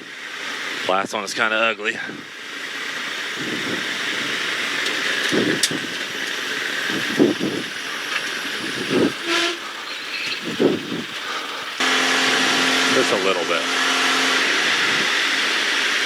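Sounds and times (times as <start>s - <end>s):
aircraft propeller engine and airflow: 1.9s - 16.0s.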